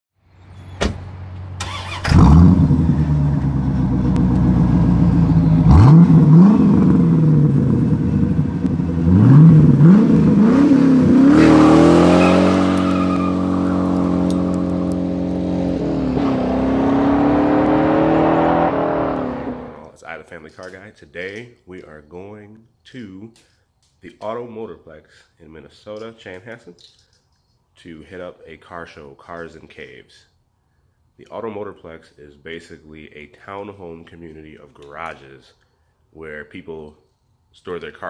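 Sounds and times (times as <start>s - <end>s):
car engine starting and revving: 1.0s - 19.9s
car accelerating hard: 1.6s - 19.9s.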